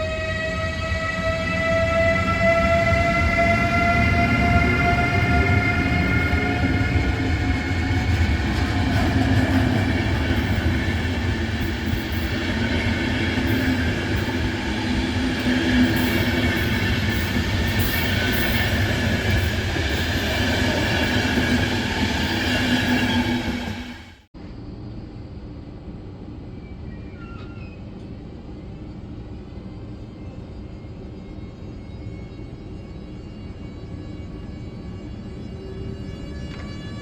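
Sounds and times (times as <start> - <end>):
train rumbling past: 0.0 - 24.3
clickety-clack of wheels: 6.5 - 14.6.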